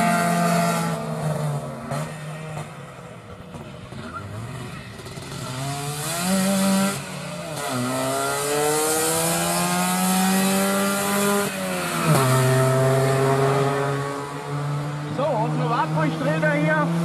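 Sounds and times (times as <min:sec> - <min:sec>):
rally car engine accelerating: 0:00.0 - 0:17.0.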